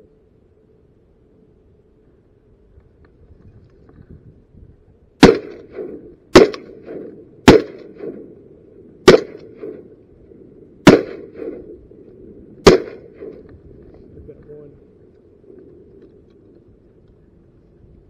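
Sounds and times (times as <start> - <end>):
shotgun shots: 5.2 - 8.3, 9.0 - 9.9, 10.8 - 11.7, 12.6 - 13.4.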